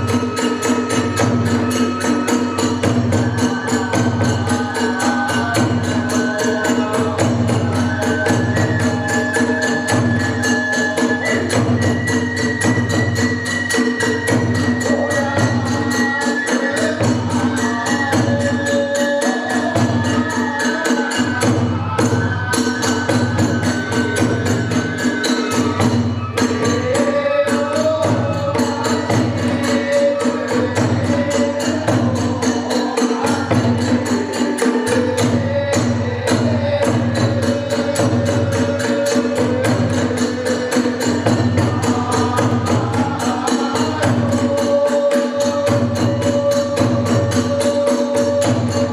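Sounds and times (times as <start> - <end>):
high bamboo flute: 0.0 - 48.9.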